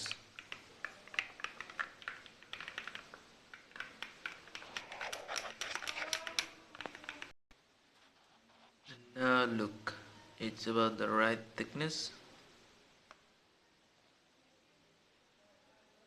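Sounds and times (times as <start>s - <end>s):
utensil clicking against cup: 0.0s - 7.3s.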